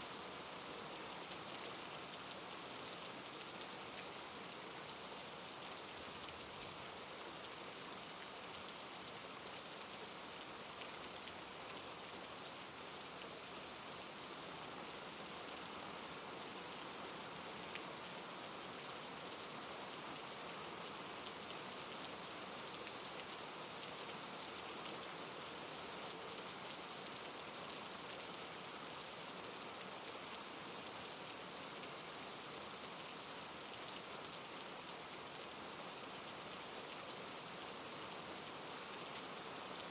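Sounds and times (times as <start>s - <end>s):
soft rain falling: 0.0s - 39.9s.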